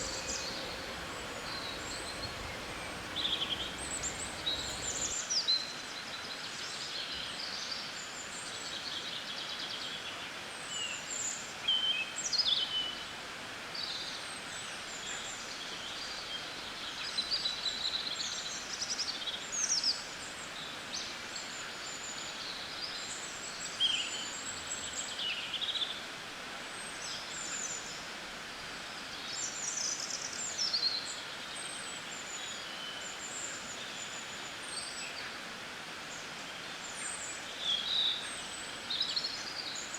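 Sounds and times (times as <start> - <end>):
songbirds chirping and singing: 0.0 - 5.1
steady background hiss: 0.0 - 5.2.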